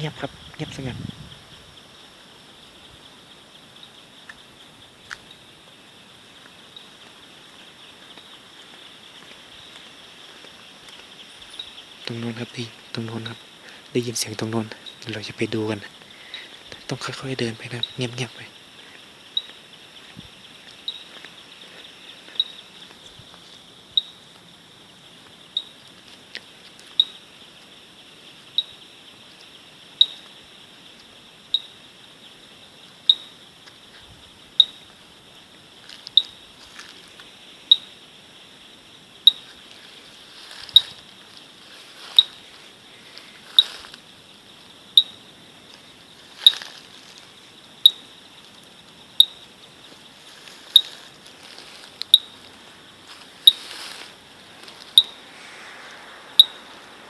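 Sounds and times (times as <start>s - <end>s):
high-pitched insect drone: 49.2s - 57.0s.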